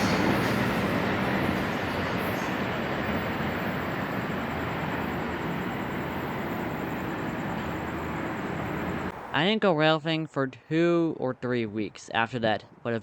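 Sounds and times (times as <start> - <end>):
train wheels rumbling on rails: 0.0 - 9.1.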